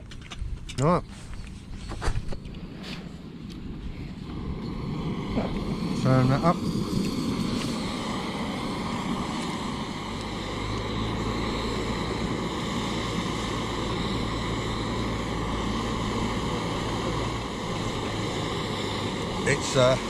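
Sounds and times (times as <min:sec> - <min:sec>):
low hum: 0:00.0 - 0:20.0
gas stove burner hissing: 0:04.1 - 0:20.0.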